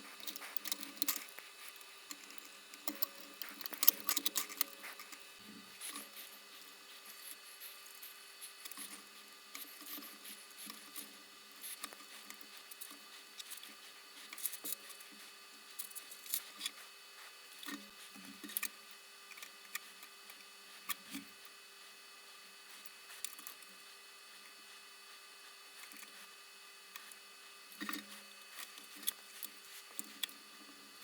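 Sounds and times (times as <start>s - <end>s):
faint electrical hum: 0.0s - 31.0s
small tools clicking and tapping: 0.2s - 5.2s.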